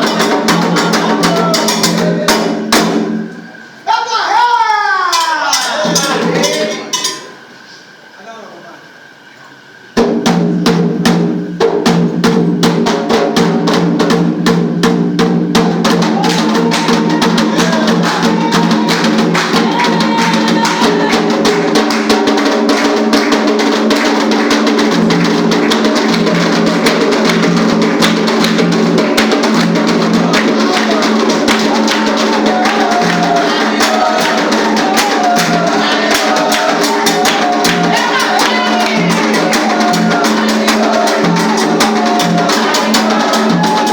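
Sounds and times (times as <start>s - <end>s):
voices singing a chant: 0.0s - 2.8s, 15.6s - 43.9s
hand drums beating: 0.0s - 3.3s, 5.1s - 7.4s, 10.0s - 43.9s.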